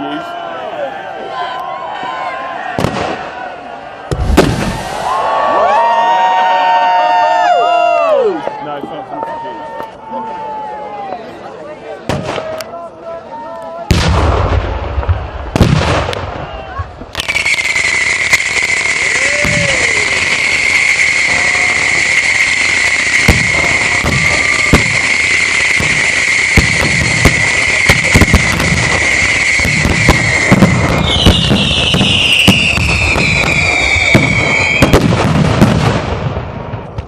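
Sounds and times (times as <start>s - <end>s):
fireworks bangs: 2.7s - 6.4s, 12.0s - 12.6s, 13.8s - 37.0s
fireworks crackling: 2.8s - 5.8s, 13.8s - 37.0s
fireworks whistling: 4.1s - 5.3s, 15.5s - 37.0s.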